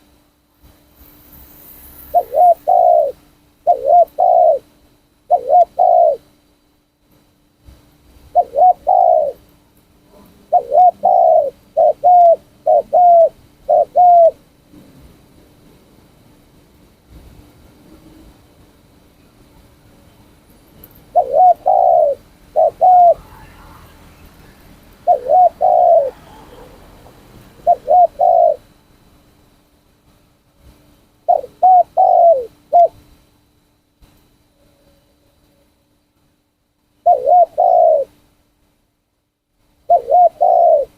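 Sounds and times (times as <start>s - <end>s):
dove cooing: 2.1s - 4.7s, 5.3s - 6.3s, 8.3s - 9.5s, 10.1s - 14.4s, 21.1s - 28.8s, 31.2s - 33.0s, 37.0s - 38.2s, 39.9s - 40.9s.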